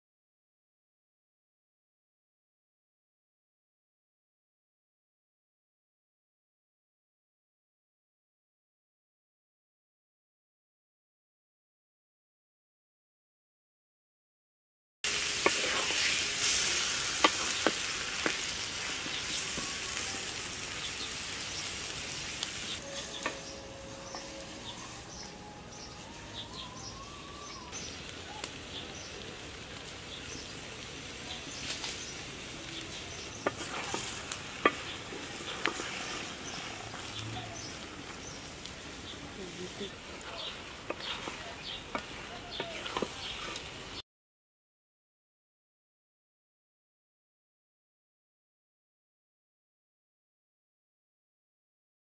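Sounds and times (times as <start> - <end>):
curry sizzling in pan: 15.0 - 44.0
wooden spatula scraping pan: 15.1 - 20.0, 22.7 - 25.3, 33.2 - 44.0.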